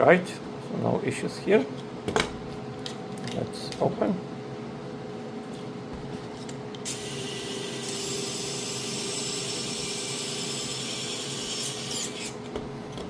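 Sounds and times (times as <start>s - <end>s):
small electric motor whirring: 6.8s - 12.4s.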